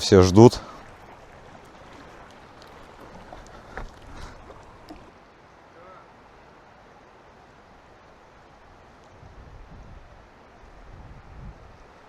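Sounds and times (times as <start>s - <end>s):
lake water lapping: 0.0s - 6.1s.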